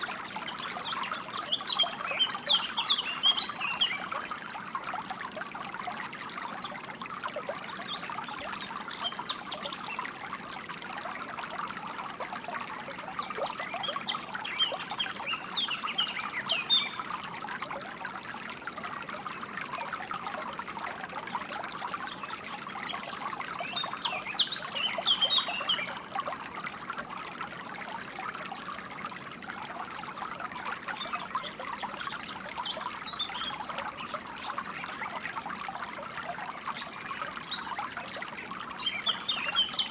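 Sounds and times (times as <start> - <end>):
songbirds chirping: 0.0 - 4.2, 13.2 - 17.2, 21.8 - 26.0, 31.0 - 35.5, 36.5 - 39.9
shallow water trickling: 0.0 - 39.9.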